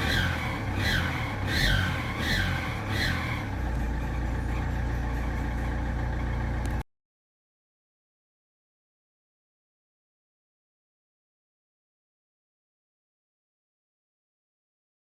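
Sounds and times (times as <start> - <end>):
diesel engine revving and idling: 0.0 - 6.8.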